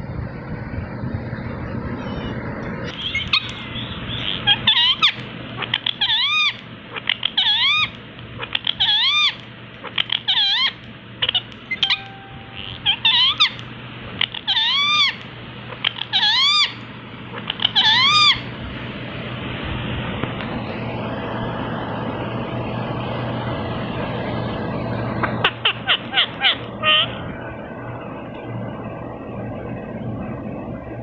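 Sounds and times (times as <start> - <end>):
parrot calling: 1.8 - 18.6, 25.2 - 28.5.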